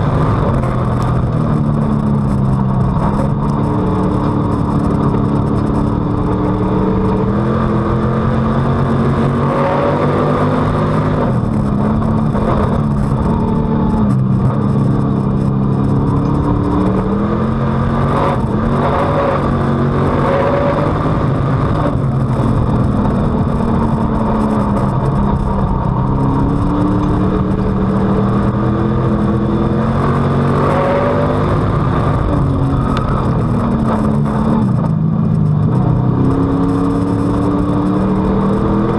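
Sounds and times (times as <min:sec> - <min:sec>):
race car engine accelerating: 0:00.0 - 0:38.9.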